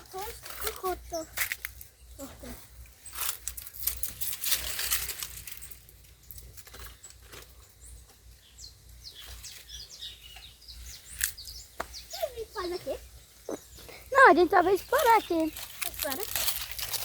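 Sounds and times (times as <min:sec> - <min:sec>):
footsteps through dry leaves: 0:00.0 - 0:07.5, 0:14.1 - 0:17.0
faint bird chirps: 0:05.4 - 0:15.6.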